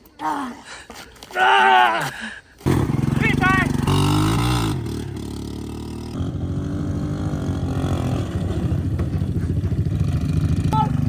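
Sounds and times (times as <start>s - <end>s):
atv engine running: 2.7s - 11.0s.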